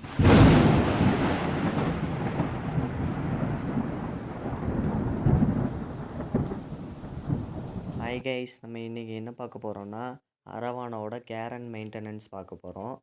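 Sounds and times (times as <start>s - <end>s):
rain hissing: 0.0s - 8.2s
rolling thunder: 0.0s - 8.2s.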